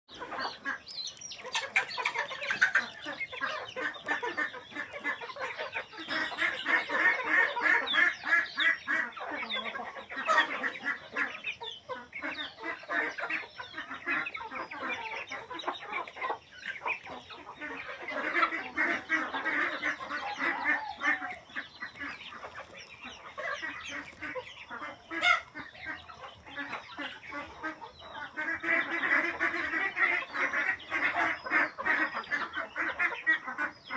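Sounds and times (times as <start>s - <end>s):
poultry clucking and quacking: 0.1s - 33.9s.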